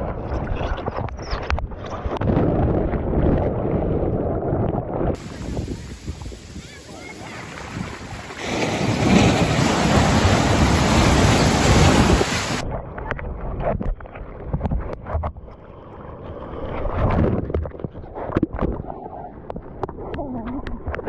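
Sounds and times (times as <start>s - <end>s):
wind on microphone: 0.0s - 21.0s
muffled underwater churning: 5.2s - 12.6s
ocean surf breaking: 5.2s - 12.6s.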